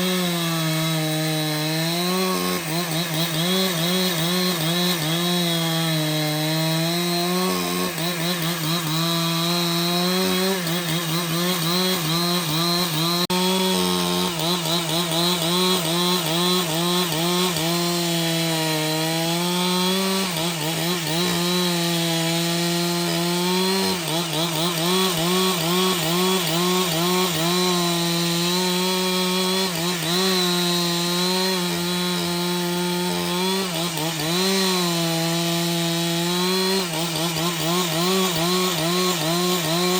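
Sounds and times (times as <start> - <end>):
chainsaw cutting through log: 0.0 - 39.9.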